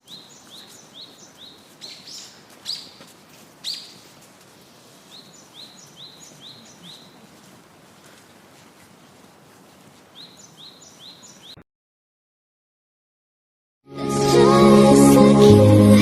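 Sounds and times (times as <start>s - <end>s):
downward-sweeping bird calls: 0.0s - 7.3s, 10.1s - 11.6s
birds chirping: 0.0s - 9.3s, 10.0s - 11.6s.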